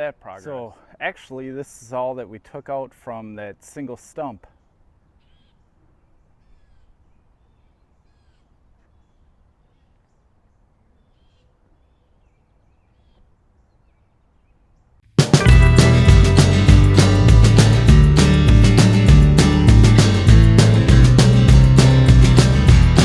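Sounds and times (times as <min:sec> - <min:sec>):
distant bird calls: 0:04.5 - 0:15.0
acoustic guitar music: 0:15.2 - 0:23.0.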